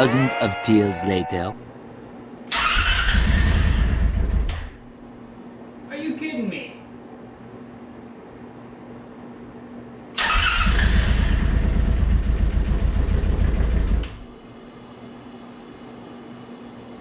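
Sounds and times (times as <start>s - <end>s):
engine cranking by starter: 2.5s - 4.8s, 10.2s - 14.3s.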